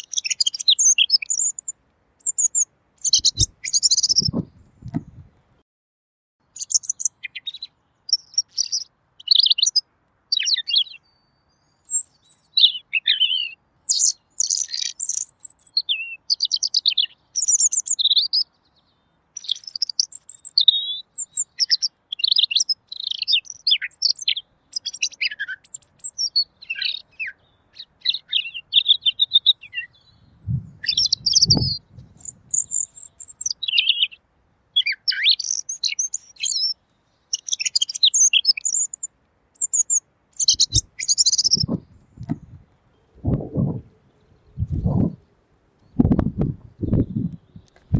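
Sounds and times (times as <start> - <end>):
bird chirping: 0.0 - 5.3, 6.4 - 34.2, 34.8 - 47.9
dull low bump: 4.3 - 5.3, 30.4 - 30.8, 41.6 - 43.9, 44.6 - 45.2, 46.0 - 47.9.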